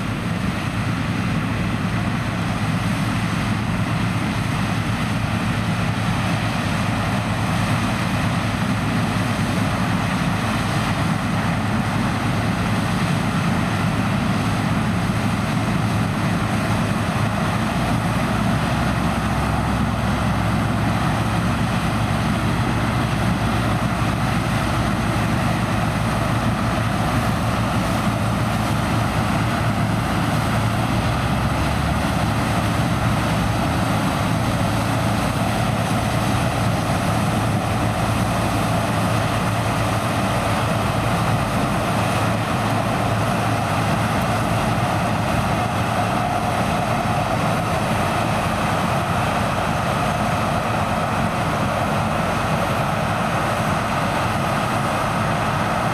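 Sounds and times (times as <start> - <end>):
combine harvester running: 0.0 - 55.9
lower drone: 13.7 - 55.9.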